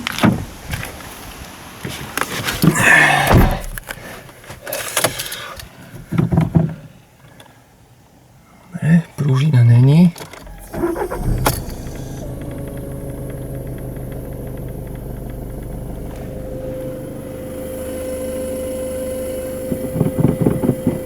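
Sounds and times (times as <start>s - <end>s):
diesel engine idling: 10.4s - 21.0s
steady whine: 10.4s - 21.0s.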